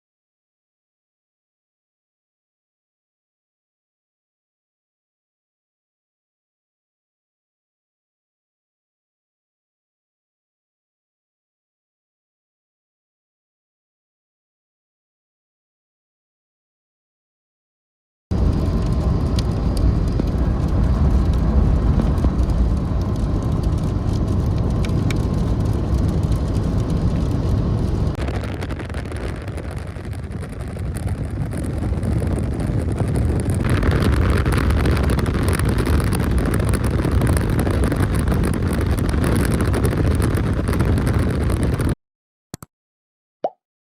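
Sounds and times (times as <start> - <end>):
vehicle road noise: 18.3 - 41.9
storm wind rushing: 18.3 - 42.0.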